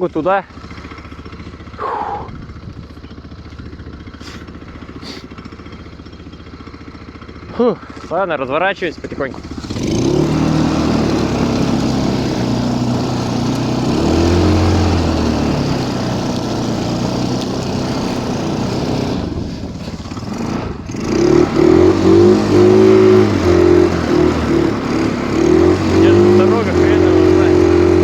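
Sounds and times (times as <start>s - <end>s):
snowmobile engine revving: 0.0s - 28.0s.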